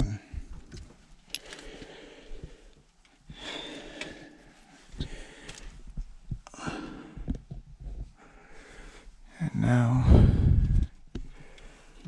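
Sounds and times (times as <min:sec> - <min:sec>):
small clicks of parts handled: 0:00.7 - 0:01.9
person breathing heavily: 0:01.3 - 0:12.0.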